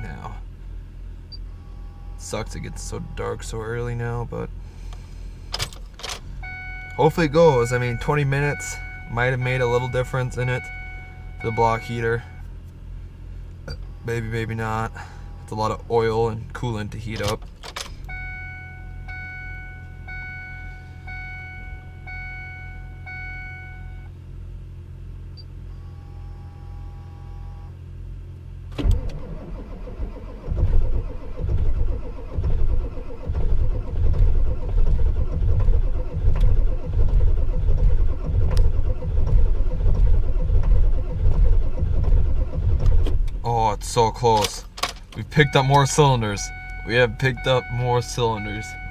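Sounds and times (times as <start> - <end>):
diesel engine cranking: 1.2 - 23.4, 28.6 - 48.9
warning chime beeping: 6.4 - 12.4, 18.1 - 24.1, 45.2 - 48.9.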